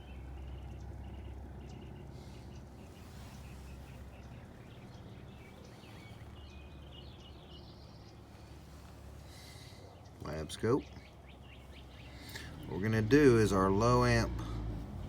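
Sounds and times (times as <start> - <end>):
birds chirping: 0.0 - 15.0
car engine idling: 0.0 - 15.0.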